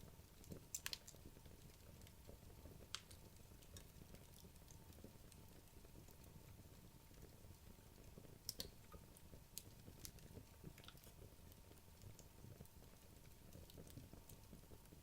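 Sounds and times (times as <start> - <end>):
fireplace logs crackling: 0.4 - 5.1.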